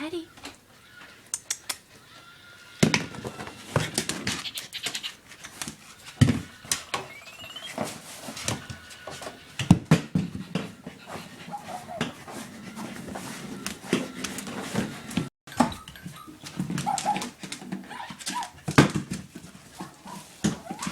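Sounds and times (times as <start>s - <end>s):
toy and paws clicking on floor: 3.3s - 7.2s, 15.6s - 18.6s
puppy whimpering: 5.9s - 7.9s, 11.0s - 14.3s, 15.7s - 18.6s.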